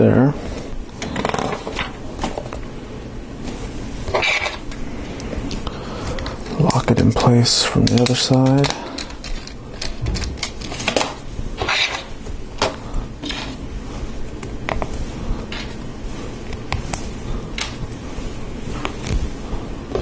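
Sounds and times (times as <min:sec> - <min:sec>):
plastic pieces clicking: 0:07.8 - 0:11.0.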